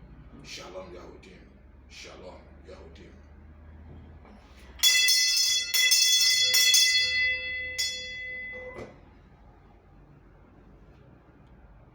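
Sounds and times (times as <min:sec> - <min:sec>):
metal bell ringing: 0:04.8 - 0:09.1.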